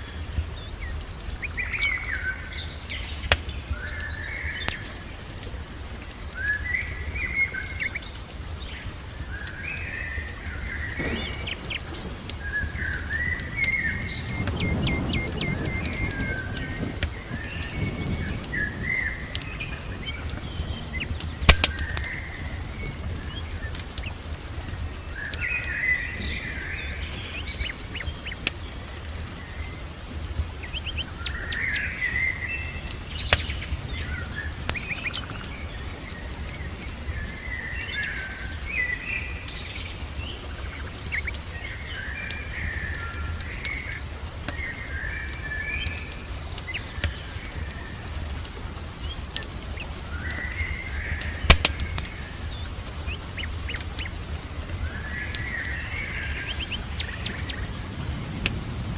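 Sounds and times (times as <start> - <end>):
steady low rumble: 0.0 - 38.8
birds chirping and singing: 0.0 - 58.7
wood fire crackling: 0.0 - 58.9.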